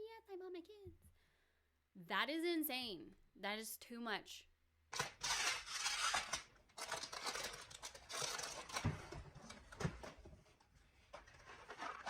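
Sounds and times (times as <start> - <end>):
plastic packaging crinkling: 5.2 - 10.0.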